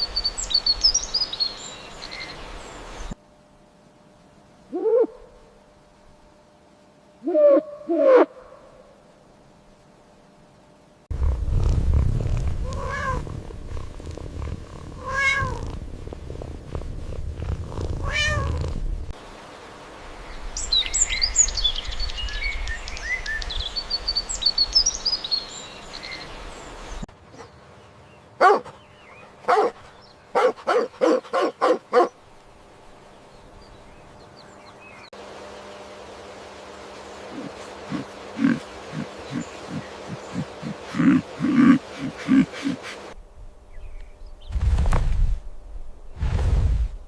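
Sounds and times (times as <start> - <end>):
cat purring: 11.1 - 19.1
cat meowing: 12.7 - 13.2, 15.0 - 15.6, 18.0 - 18.7
short animal calls: 37.3 - 43.0.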